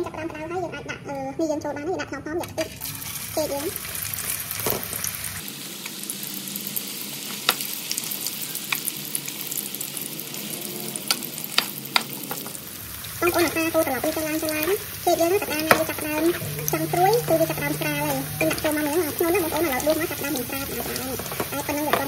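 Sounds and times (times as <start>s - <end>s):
deep-frying sizzle in oil: 2.5s - 22.0s
wavering pitched sound: 13.2s - 21.5s.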